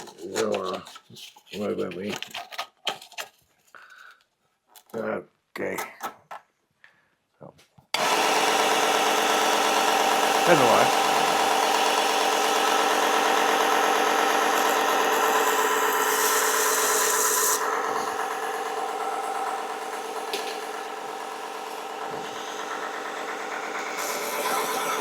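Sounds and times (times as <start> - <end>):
belt sander motor whine: 8.0 - 25.0
blade grinding on belt: 8.0 - 25.0.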